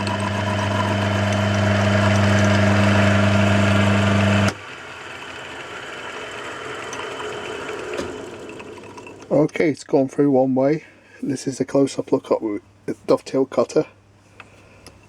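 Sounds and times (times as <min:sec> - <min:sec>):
metal cutting noise: 0:00.0 - 0:04.6
motor hum: 0:00.0 - 0:09.4.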